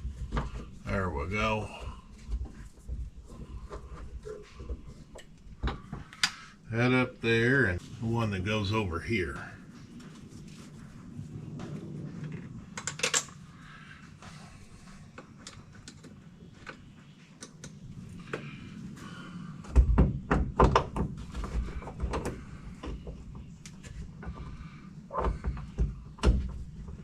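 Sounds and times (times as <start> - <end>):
heavier knocks and rattles: 19.6 - 23.4.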